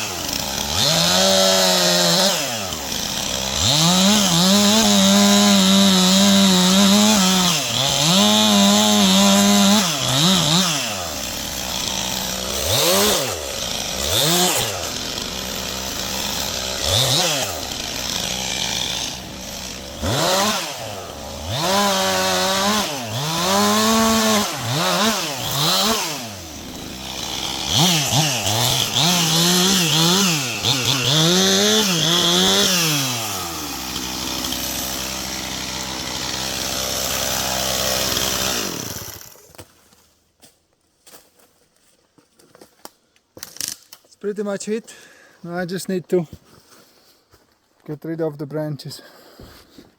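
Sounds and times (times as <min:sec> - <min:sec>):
chainsaw revving and idling: 0:00.0 - 0:39.6.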